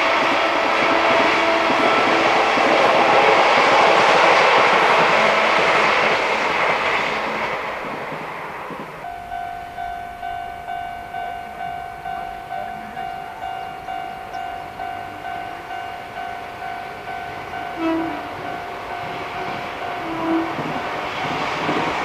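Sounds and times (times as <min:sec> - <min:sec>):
level crossing warning bell: 0:09.0 - 0:20.9.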